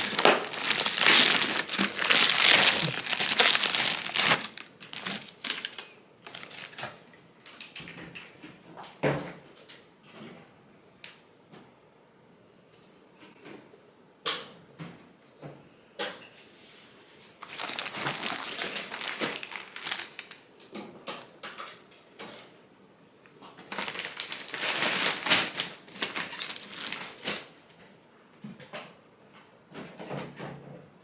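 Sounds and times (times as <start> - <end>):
bags rustling and crinkling: 0.0 - 7.0, 17.4 - 20.5, 23.6 - 27.6.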